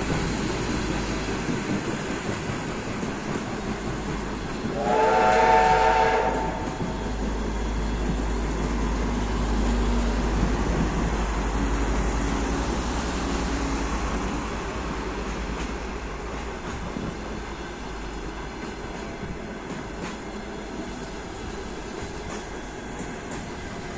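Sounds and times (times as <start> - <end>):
train carriages rumbling on rails: 0.0 - 23.9
multi-tone train whistle: 4.6 - 7.0.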